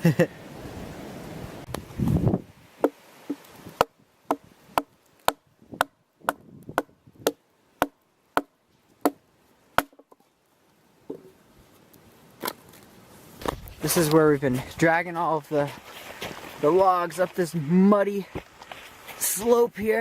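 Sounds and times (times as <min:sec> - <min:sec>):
axe chopping wood: 0:02.8 - 0:09.2, 0:09.8 - 0:10.2.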